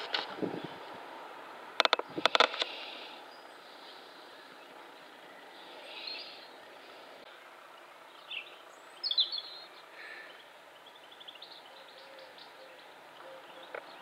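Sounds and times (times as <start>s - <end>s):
birds chirping: 0.0s - 14.0s
steady background hiss: 0.0s - 14.0s.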